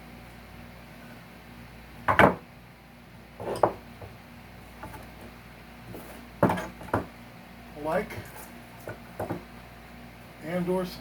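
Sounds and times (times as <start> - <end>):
hand tools and wood clattering: 3.4 - 3.8, 5.9 - 7.1.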